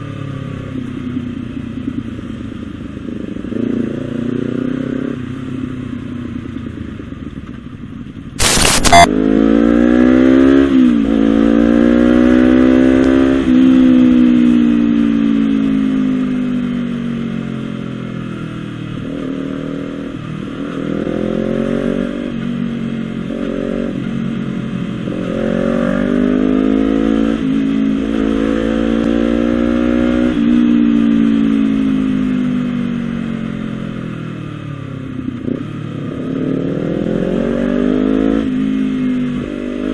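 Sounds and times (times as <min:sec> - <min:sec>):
sharp loud burst of noise: 0:08.4 - 0:09.1.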